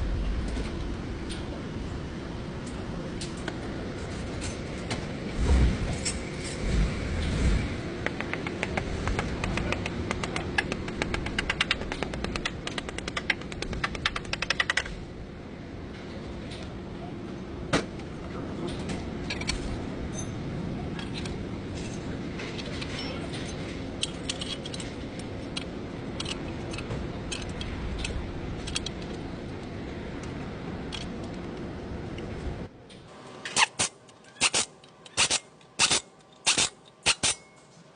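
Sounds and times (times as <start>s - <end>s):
rapid sharp clicks: 8.0s - 14.9s.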